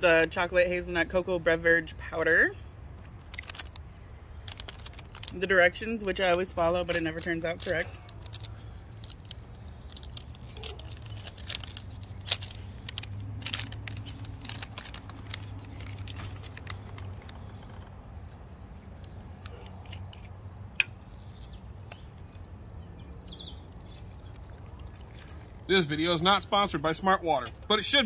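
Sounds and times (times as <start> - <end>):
plastic packaging crinkling: 3.1 - 20.3, 23.3 - 25.7.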